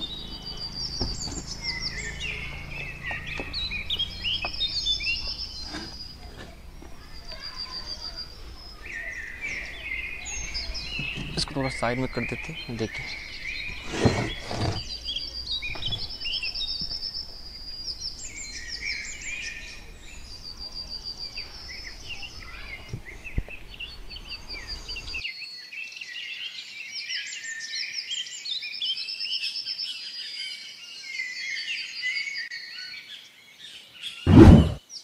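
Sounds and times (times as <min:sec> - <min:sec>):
songbirds chirping and singing: 0:00.0 - 0:35.0.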